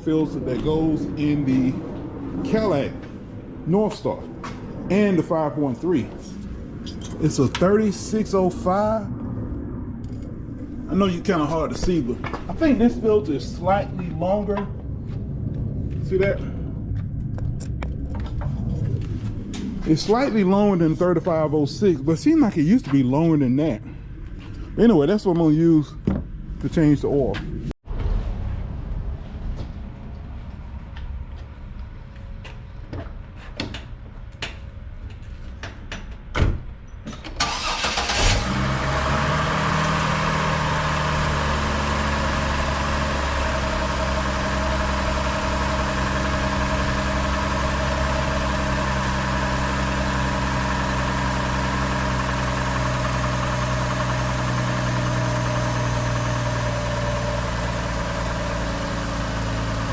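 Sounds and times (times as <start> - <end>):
car engine starting and idling: 37.1 - 59.9.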